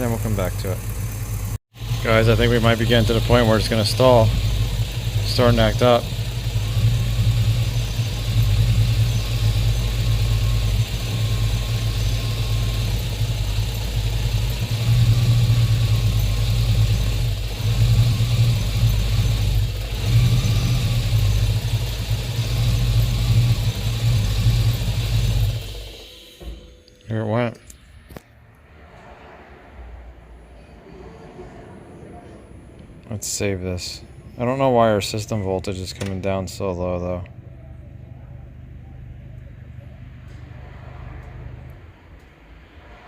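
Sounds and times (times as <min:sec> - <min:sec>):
engine idling unevenly and stalling: 0:00.0 - 0:27.0.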